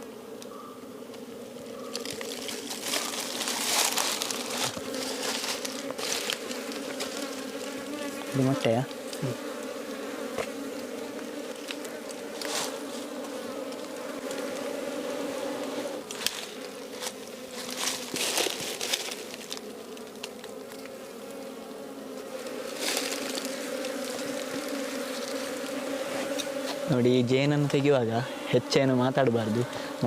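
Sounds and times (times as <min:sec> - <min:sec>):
honeybees buzzing: 0:00.0 - 0:30.0
rustles and clicks: 0:01.9 - 0:07.9, 0:16.1 - 0:21.0.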